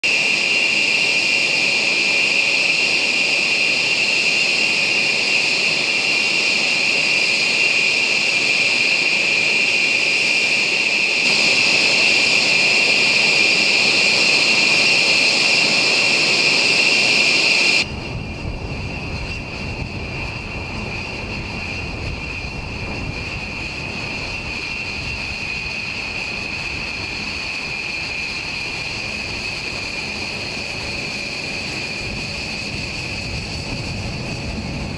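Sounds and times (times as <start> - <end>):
jet engines whining: 0.0 - 34.9
deep jet rumble: 9.5 - 34.9.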